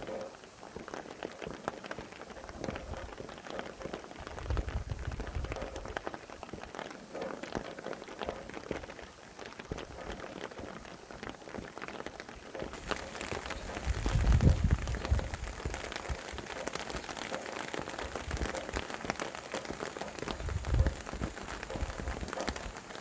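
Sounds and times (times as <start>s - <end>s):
rain drops ticking: 0.0s - 23.0s
low rumble of wind gusts: 4.2s - 6.1s, 12.7s - 17.1s, 17.9s - 19.0s, 20.1s - 22.8s.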